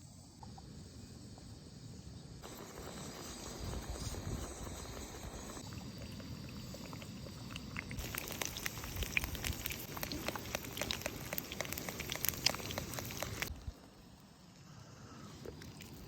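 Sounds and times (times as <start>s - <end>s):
eggs sizzling in hot pan: 2.4s - 13.5s
fat spitting crackles: 5.5s - 13.5s, 15.1s - 16.0s.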